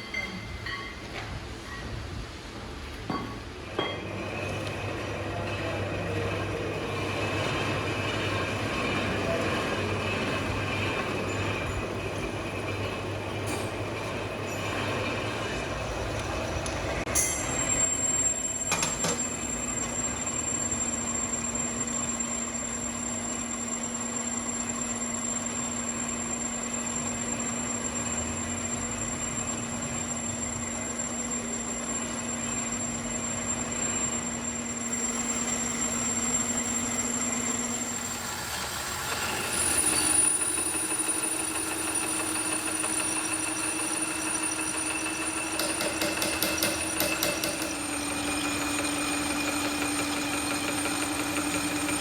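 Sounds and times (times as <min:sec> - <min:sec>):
metalworking machine hum and whine: 0:00.0 - 0:52.0.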